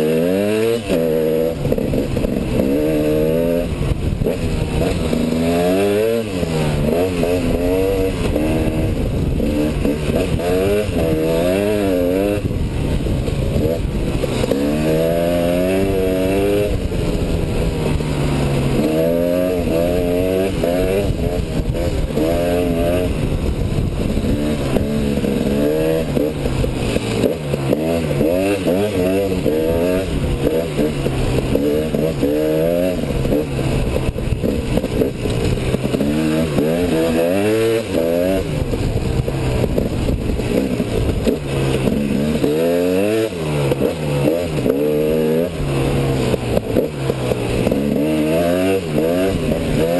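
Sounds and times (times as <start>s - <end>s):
motorcycle engine revving: 0.0s - 49.9s
steady rushing noise: 0.0s - 49.9s.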